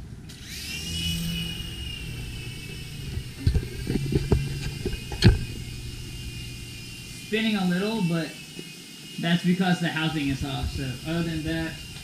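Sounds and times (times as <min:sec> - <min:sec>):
toy helicopter motors whining: 0:00.3 - 0:12.0.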